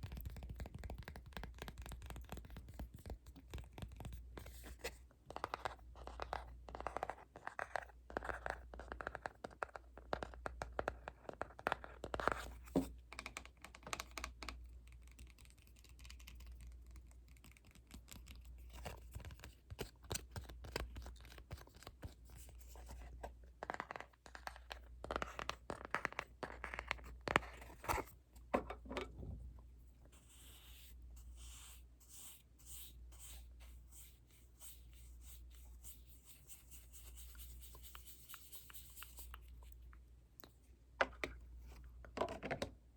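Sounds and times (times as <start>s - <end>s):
scratching and tapping: 0.0s - 4.6s.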